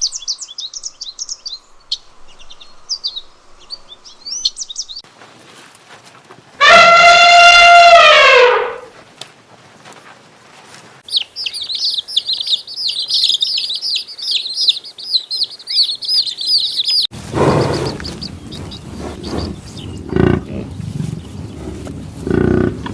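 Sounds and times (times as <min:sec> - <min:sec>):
bird chirping rapidly: 0:00.0 - 0:05.0, 0:11.1 - 0:21.6
low bird call: 0:11.1 - 0:22.7.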